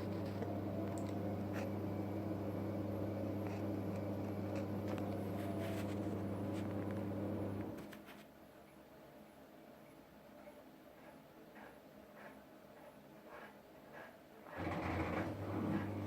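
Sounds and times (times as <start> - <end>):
washing machine humming: 0.0 - 7.9, 14.4 - 16.0
faint clicks: 0.9 - 1.2.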